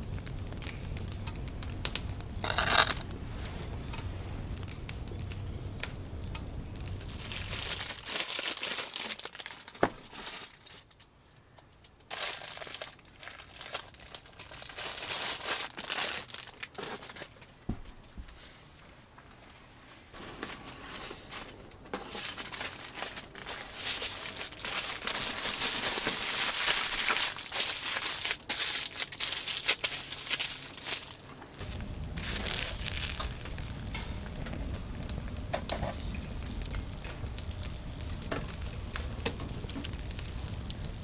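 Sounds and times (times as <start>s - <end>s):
low steady hum: 0.0s - 8.2s, 20.2s - 41.0s
material crinkling and rustling: 0.0s - 41.0s.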